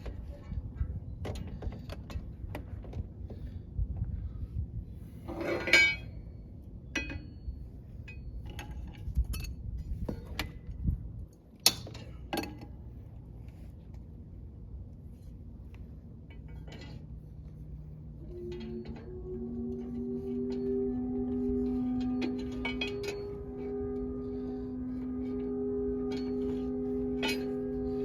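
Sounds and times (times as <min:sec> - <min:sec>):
metal tools clinking and clanking: 0:05.3 - 0:06.2, 0:16.2 - 0:17.2, 0:19.8 - 0:25.4.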